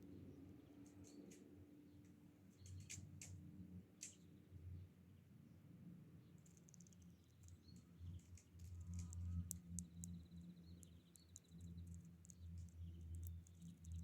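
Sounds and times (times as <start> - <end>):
small birds chirping: 0.2 - 3.4, 6.2 - 14.0.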